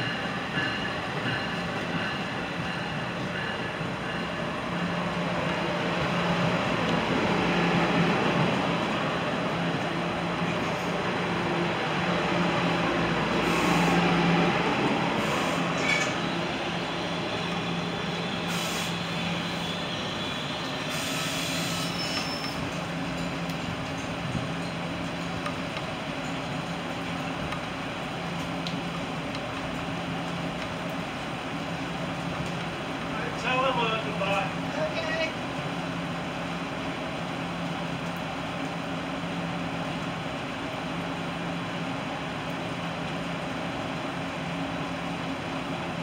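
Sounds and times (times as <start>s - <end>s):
train coaches rumbling past: 0.0s - 46.0s
short hisses: 18.5s - 19.1s.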